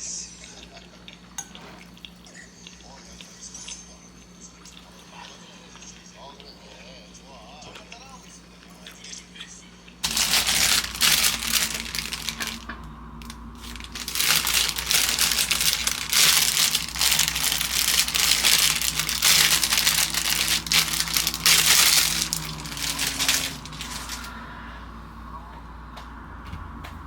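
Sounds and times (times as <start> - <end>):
crinkling and crushing: 10.0 - 24.4.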